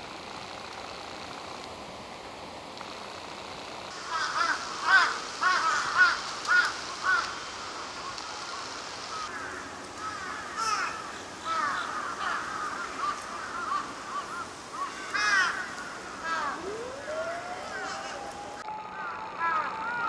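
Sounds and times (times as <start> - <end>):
birds calling harshly: 3.9 - 16.8.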